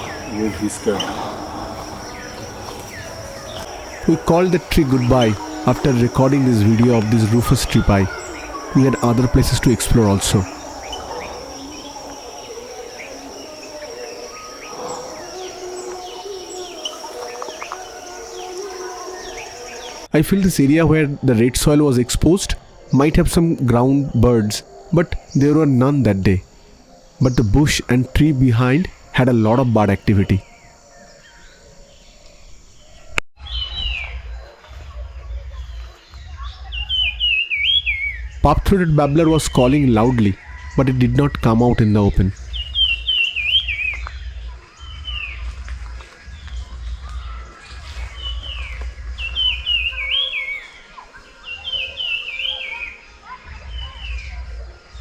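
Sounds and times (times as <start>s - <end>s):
bird whistled call sliding downward: 0.0s - 20.1s
bird chirps: 0.0s - 22.3s, 35.4s - 55.0s
high insect drone: 0.0s - 33.1s, 34.0s - 55.0s
faint forest background: 0.0s - 55.0s.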